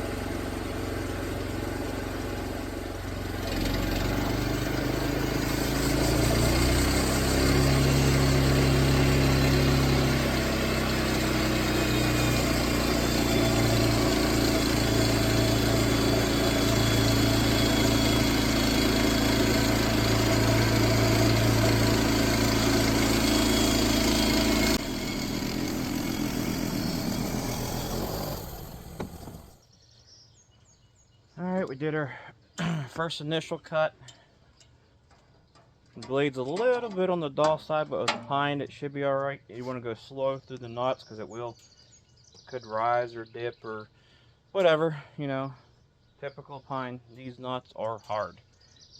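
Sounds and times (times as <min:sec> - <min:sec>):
petrol engine running: 0:00.0 - 0:29.6
saw blade cutting log: 0:00.0 - 0:29.6.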